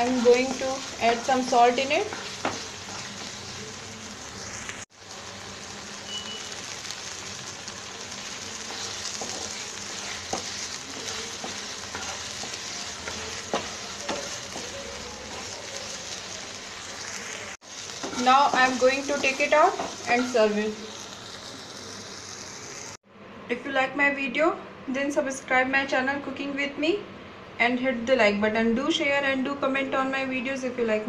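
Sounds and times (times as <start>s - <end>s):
vegetables sizzling in a pan: 0.0s - 23.0s.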